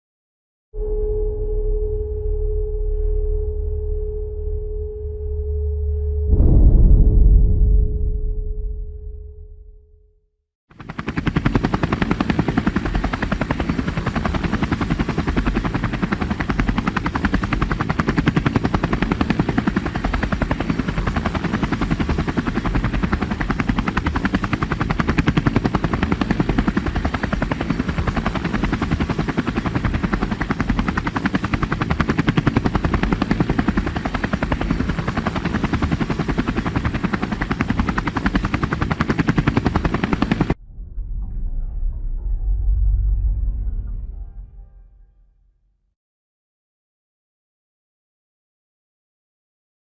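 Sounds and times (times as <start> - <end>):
high turbine whine: 0.8 - 9.8
helicopter rotor beat: 10.7 - 40.6.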